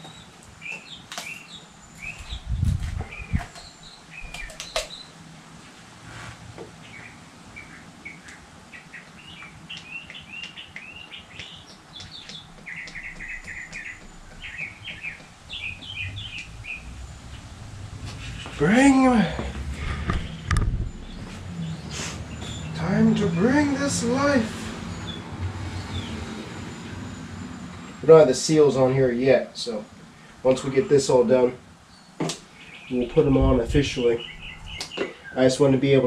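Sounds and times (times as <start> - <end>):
small birds chirping: 0.0 - 5.2, 6.6 - 28.1, 29.6 - 36.0
low thumps: 19.3 - 22.7, 33.0 - 34.8.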